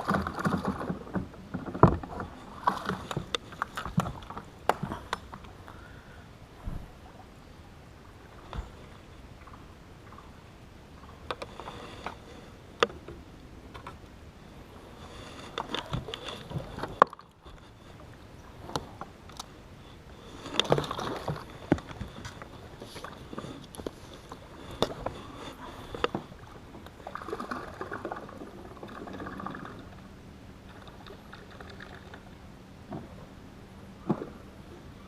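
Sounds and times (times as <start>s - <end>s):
knocks and clicks on a boat: 0.0s - 5.8s, 11.1s - 14.2s, 15.4s - 19.6s, 20.5s - 29.2s, 32.8s - 33.3s, 34.0s - 35.0s
water sounds: 0.0s - 35.0s.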